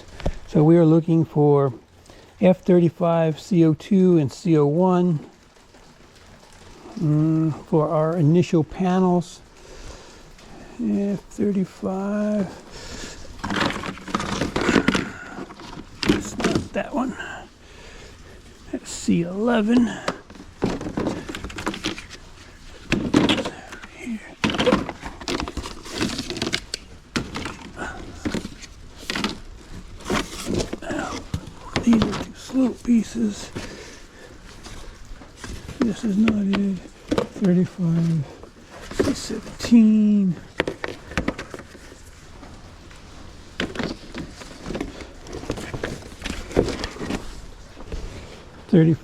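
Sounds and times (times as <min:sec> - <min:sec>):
hollow plastic panels clattering: 0:11.7 - 0:17.1, 0:18.8 - 0:33.9, 0:34.5 - 0:42.5, 0:43.5 - 0:48.0
plastic panels knocking together: 0:13.4 - 0:16.8, 0:19.7 - 0:22.1, 0:22.8 - 0:32.5.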